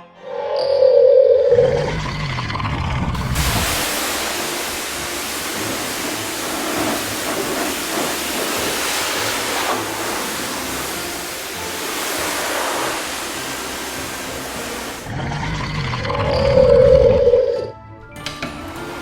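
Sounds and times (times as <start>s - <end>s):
loud rushing hiss: 1.5s - 17.4s.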